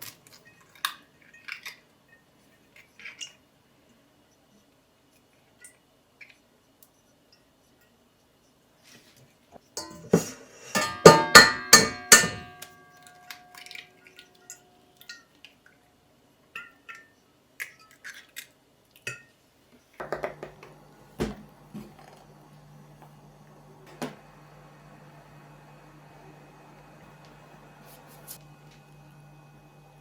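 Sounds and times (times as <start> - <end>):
kitchenware clinking: 9.8 - 15.4
faint steady hum: 19.2 - 30.0.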